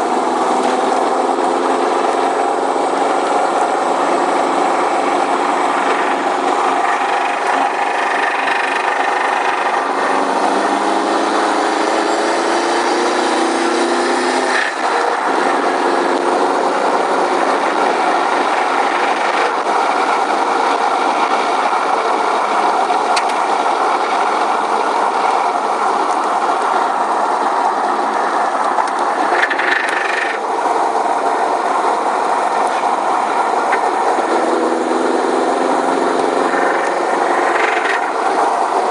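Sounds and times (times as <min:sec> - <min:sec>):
car engine running with rod knock: 0:23.0 - 0:23.8, 0:28.6 - 0:30.4, 0:33.6 - 0:34.1, 0:36.4 - 0:38.3.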